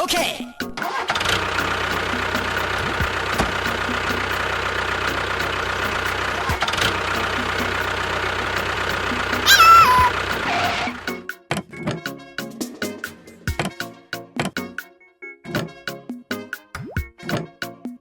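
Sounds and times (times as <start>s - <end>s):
engine idling: 0.9s - 11.1s.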